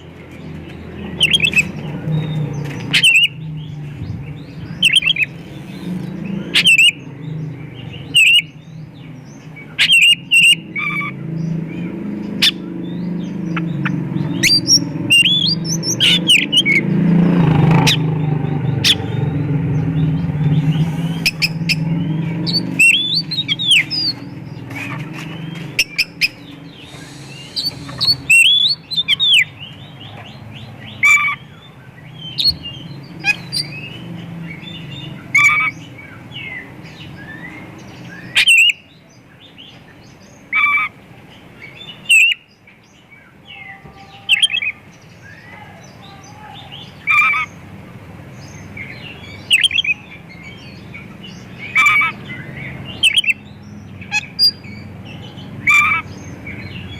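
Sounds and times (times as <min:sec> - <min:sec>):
bird singing: 0:00.0 - 0:56.9
steady low hum: 0:25.6 - 0:29.1.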